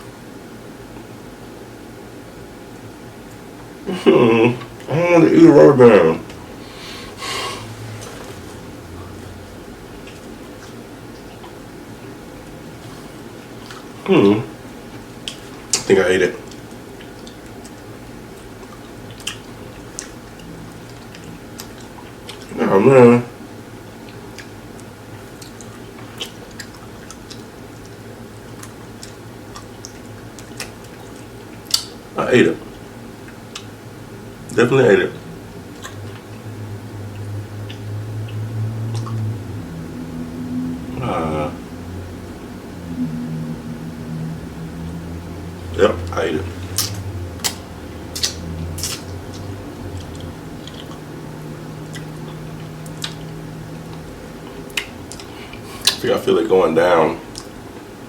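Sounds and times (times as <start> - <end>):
steady low hum: 0.0 - 58.0
chewing with wet mouth smacks: 14.9 - 22.6, 24.0 - 32.0, 35.7 - 39.3, 46.5 - 56.0
wet mouth clicks and smacks: 28.6 - 32.0, 38.9 - 39.3, 46.6 - 51.1, 51.9 - 53.3, 54.7 - 56.0.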